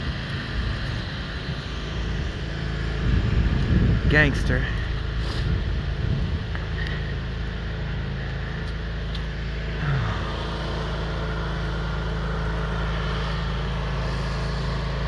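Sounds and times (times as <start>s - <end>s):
low engine drone: 0.0s - 15.0s.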